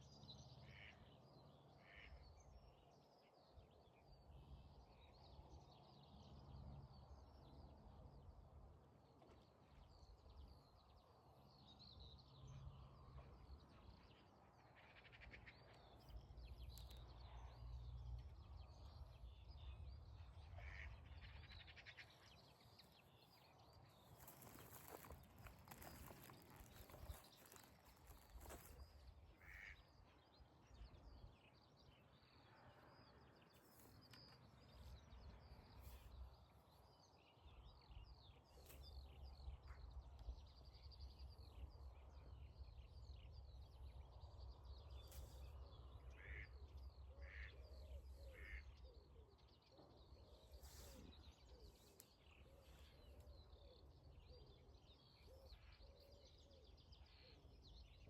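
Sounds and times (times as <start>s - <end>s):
faint bird chirps: 20.6s - 30.1s.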